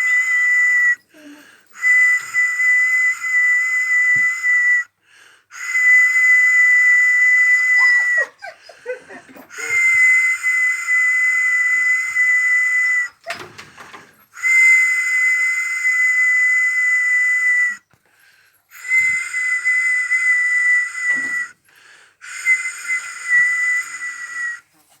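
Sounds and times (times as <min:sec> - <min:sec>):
whistle blasts: 0:01.8 - 0:04.9, 0:18.8 - 0:21.6, 0:22.2 - 0:24.6.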